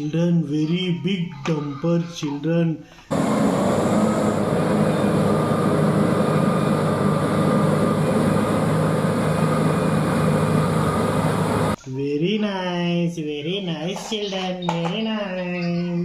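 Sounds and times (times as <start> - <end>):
heavy vehicle engine rumble: 3.1 - 11.8.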